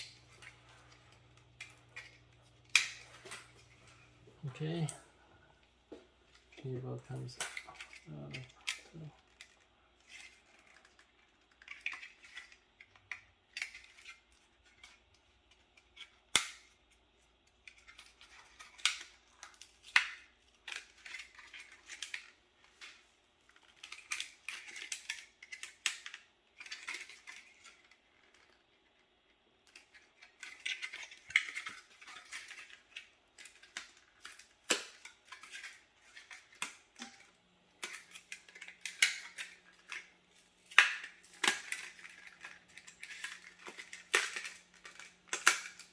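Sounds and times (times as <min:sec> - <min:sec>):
plastic and metal parts handled: 0:00.0 - 0:45.9.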